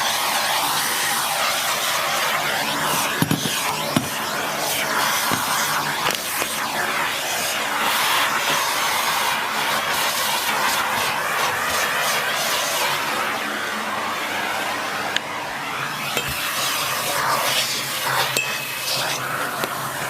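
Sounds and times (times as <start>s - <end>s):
vacuum cleaner running: 0.0s - 20.0s
brush knocking: 2.9s - 4.3s, 5.3s - 5.7s, 16.2s - 16.5s.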